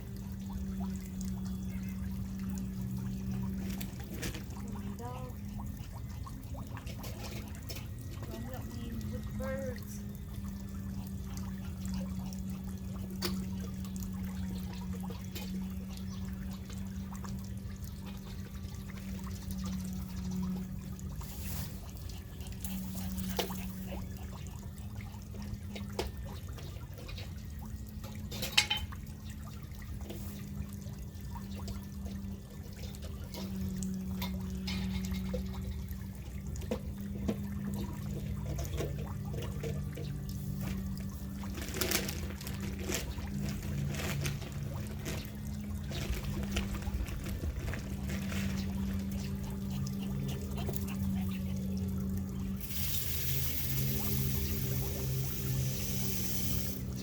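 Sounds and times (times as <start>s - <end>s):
steady low hum: 0.0s - 57.0s
water trickling: 0.0s - 57.0s.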